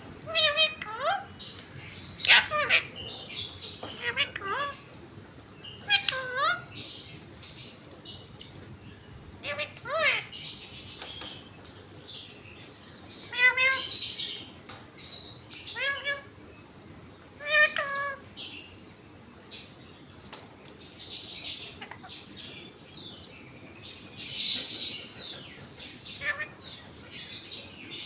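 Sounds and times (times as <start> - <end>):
parrot squawking: 0.2 - 4.9, 5.7 - 6.9, 9.4 - 10.6, 13.2 - 14.3, 15.6 - 16.4, 17.4 - 18.5, 21.4 - 22.2, 24.2 - 27.4.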